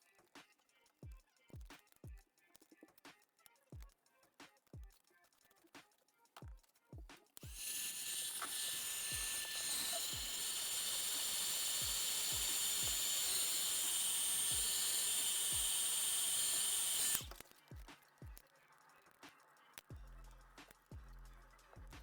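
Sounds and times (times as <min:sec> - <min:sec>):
background music with thumping beat: 0:00.0 - 0:07.6, 0:17.2 - 0:22.0
machine hissing and whining: 0:07.4 - 0:17.4.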